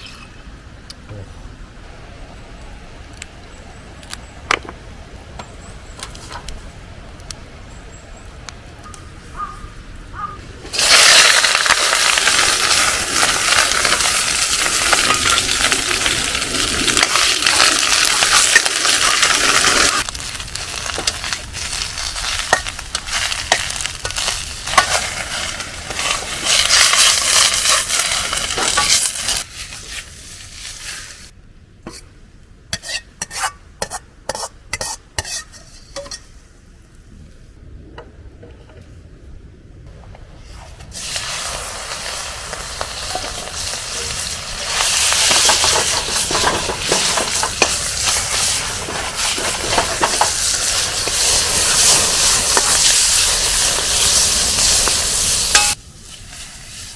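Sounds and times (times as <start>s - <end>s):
food sizzling in a wok: 10.7s - 31.3s, 40.9s - 56.9s.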